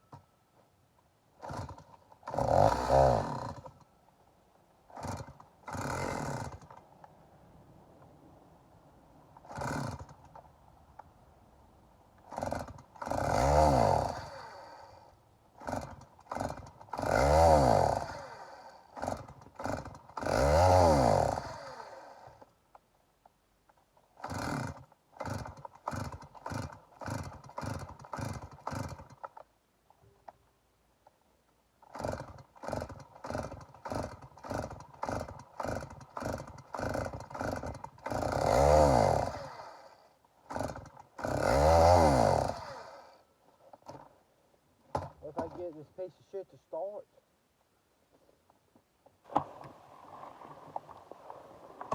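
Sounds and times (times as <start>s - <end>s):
chainsaw engine firing briefly: 1.4s - 3.8s, 4.9s - 6.8s, 9.4s - 10.4s, 12.2s - 15.0s, 15.6s - 22.5s, 24.2s - 29.4s, 31.8s - 43.2s, 44.9s - 45.8s.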